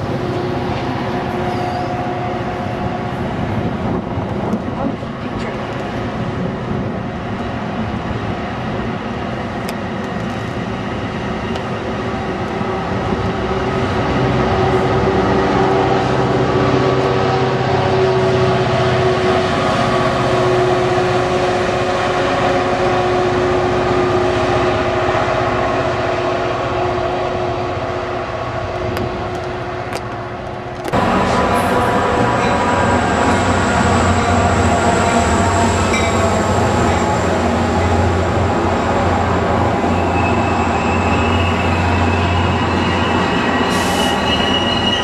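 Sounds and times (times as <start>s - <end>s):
train mechanical hum: 0.0s - 45.0s.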